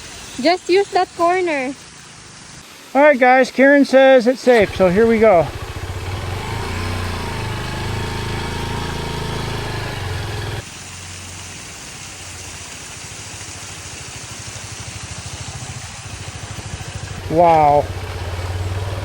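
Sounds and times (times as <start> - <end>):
motorcycle engine running: 4.6 - 11.4, 13.9 - 19.0.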